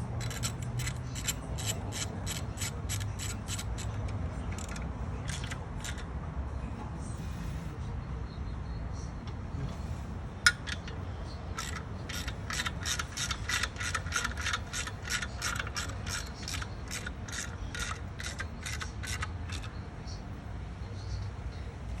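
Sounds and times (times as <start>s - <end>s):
ratchet wrench clicking: 0.0s - 6.1s, 10.5s - 11.0s, 11.6s - 19.7s.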